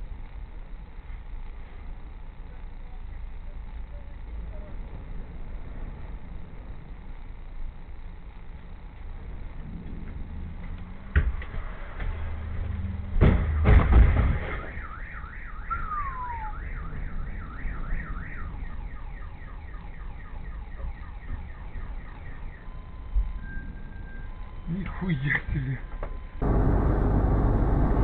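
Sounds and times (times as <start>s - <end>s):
heavy collision impacts: 13.2s - 14.7s
car alarm warbling: 14.5s - 25.7s.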